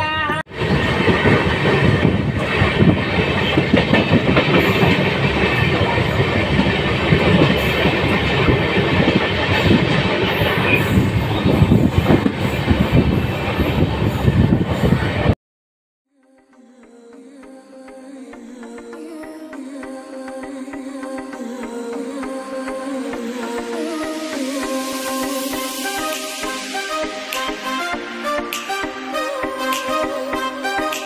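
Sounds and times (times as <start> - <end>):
train rumble: 0.0 - 15.4.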